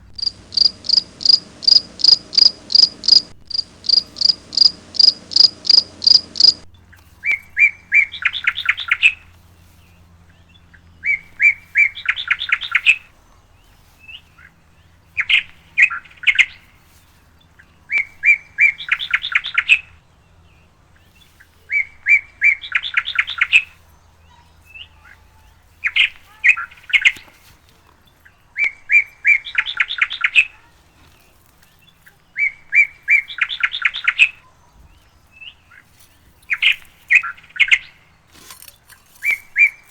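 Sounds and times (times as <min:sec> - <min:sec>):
songbird singing with trill: 0:00.0 - 0:06.7.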